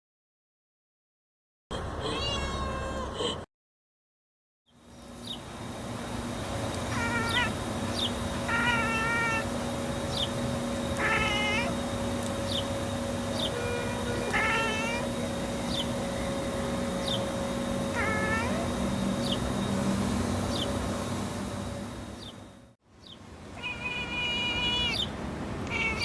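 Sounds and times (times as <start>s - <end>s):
steady low hum: 4.8s - 23.6s
cat chirping and chattering: 6.8s - 16.0s, 17.9s - 19.5s, 23.6s - 25.1s, 25.7s - 26.0s.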